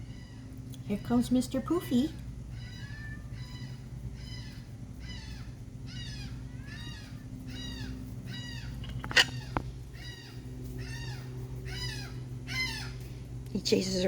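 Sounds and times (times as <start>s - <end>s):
gull calling: 2.6s - 13.0s.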